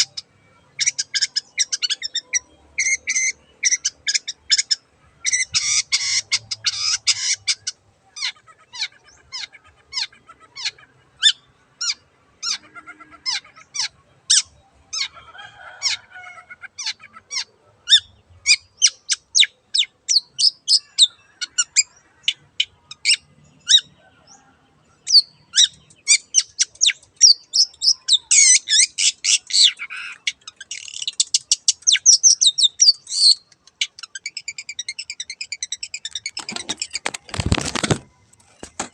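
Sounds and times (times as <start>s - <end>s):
bird rapid chattering: 25.1s - 38.9s.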